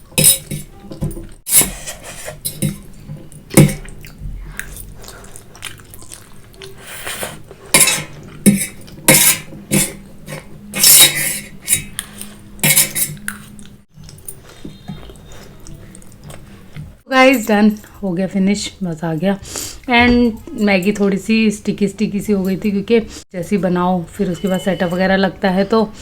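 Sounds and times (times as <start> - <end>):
cutlery scraping a plate: 0.0 - 3.9, 6.8 - 13.6.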